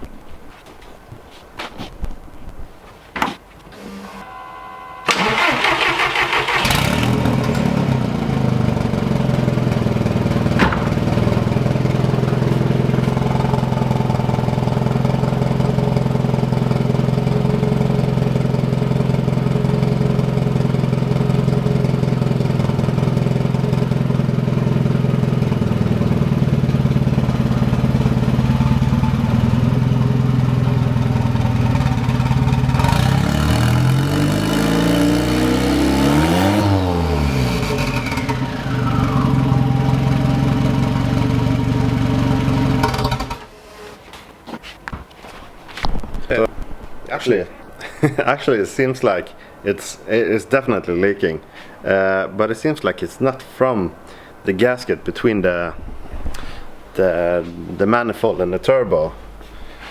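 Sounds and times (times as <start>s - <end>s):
car engine cranking: 3.2s - 43.5s
turbocharged engine idling: 5.1s - 43.5s.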